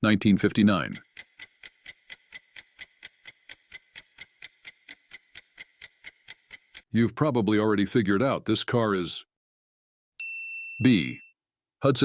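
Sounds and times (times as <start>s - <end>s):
rapid clock ticking: 0.9s - 6.9s.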